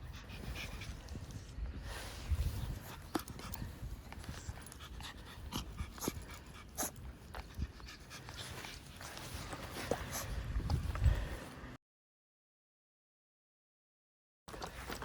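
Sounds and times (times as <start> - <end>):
dog panting: 0.0 - 1.4, 2.6 - 10.4.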